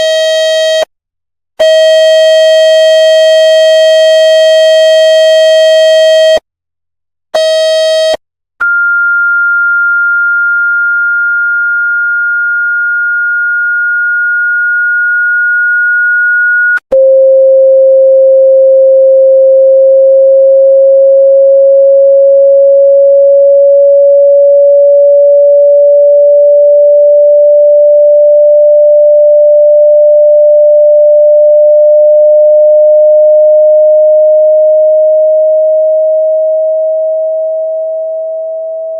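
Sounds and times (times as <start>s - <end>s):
high pure tone: 0.0s - 0.9s, 29.7s - 38.9s
pure tone rising in pitch: 20.3s - 29.7s, 31.4s - 38.9s.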